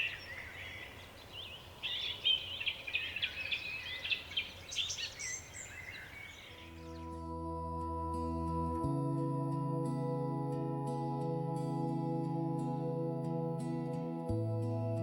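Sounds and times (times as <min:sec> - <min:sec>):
songbirds chirping and trilling: 0:00.0 - 0:07.2
soft ambient music: 0:06.2 - 0:15.0.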